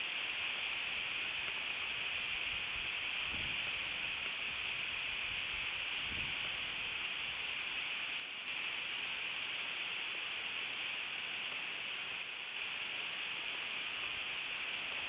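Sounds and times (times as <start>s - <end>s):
steady hiss: 0.0s - 15.0s
faint ticks: 8.1s - 8.7s.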